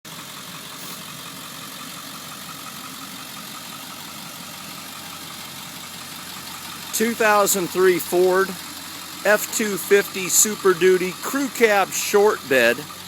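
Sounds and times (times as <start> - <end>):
diesel engine idling: 0.1 - 13.0.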